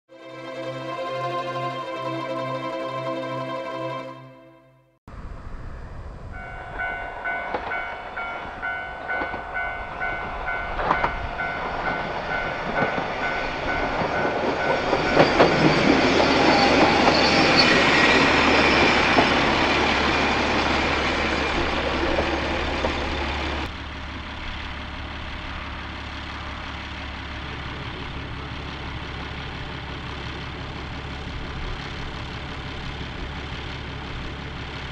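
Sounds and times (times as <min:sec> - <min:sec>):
railcar passing: 0:00.1 - 0:04.5, 0:05.1 - 0:34.9
diesel railcar idling: 0:06.2 - 0:34.9
level crossing bell ringing: 0:06.4 - 0:17.3.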